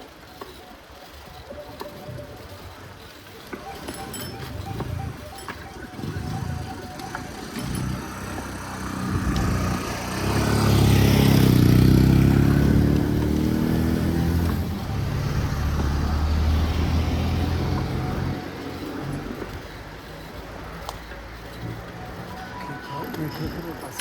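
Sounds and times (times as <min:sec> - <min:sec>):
low traffic hum: 0:00.0 - 0:24.0
vehicle engine accelerating past: 0:05.9 - 0:19.5.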